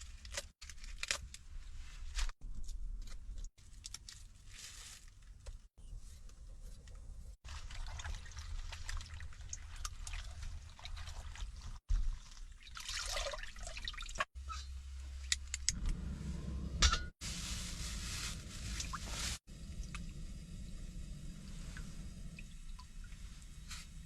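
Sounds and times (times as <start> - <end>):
steady low hum: 19.5 - 24.0
water trickling and dripping: 21.6 - 24.0.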